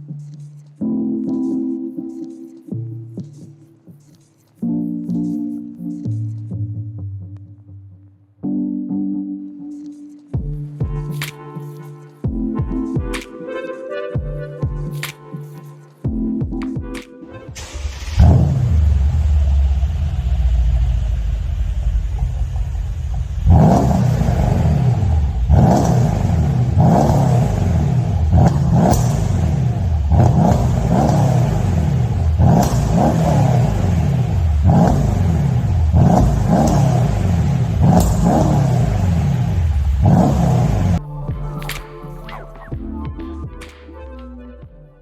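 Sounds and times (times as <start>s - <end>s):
engine revving blips: 17.6s - 42.7s
car engine idle rumble: 17.8s - 41.0s.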